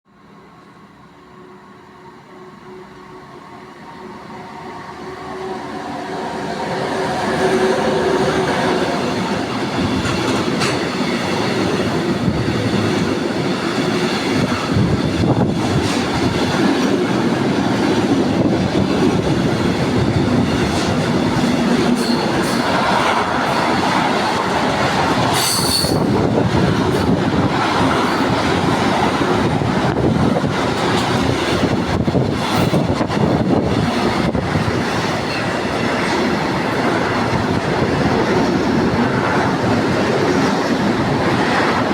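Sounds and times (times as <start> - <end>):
train wheels rumbling and clicking: 6.6 - 41.9
high wheel squeal: 25.3 - 26.1.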